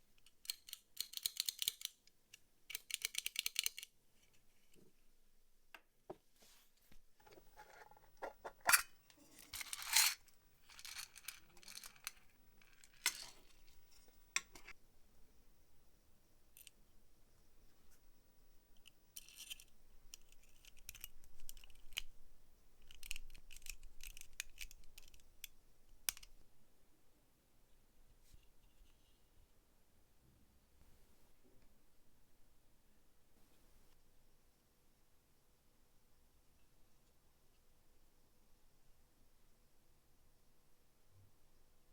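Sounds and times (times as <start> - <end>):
small metal parts clicking: 0.2 - 3.9, 8.7 - 13.7, 19.2 - 22.1, 22.8 - 25.5.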